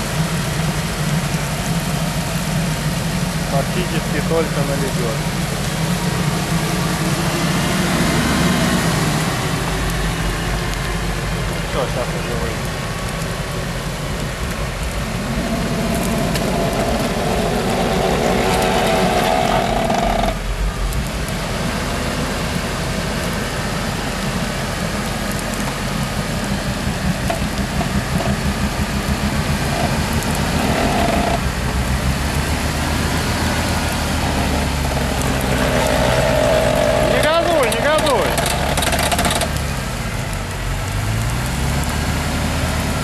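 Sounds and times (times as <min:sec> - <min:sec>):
off-road engine under load: 0:00.0 - 0:43.0
winch motor whining: 0:15.0 - 0:20.4, 0:27.1 - 0:31.4, 0:34.2 - 0:39.6.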